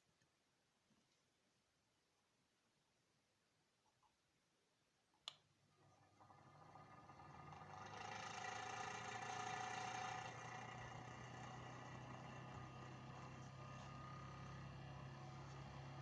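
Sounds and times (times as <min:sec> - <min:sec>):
mini fan motor whirring: 0:06.0 - 0:16.0.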